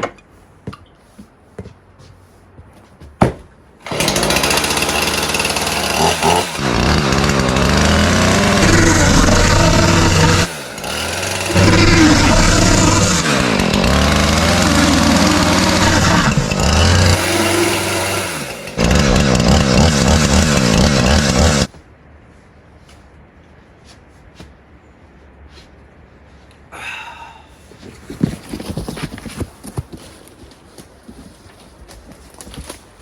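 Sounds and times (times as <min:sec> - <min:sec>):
small petrol engine revving: 0:03.8 - 0:21.7.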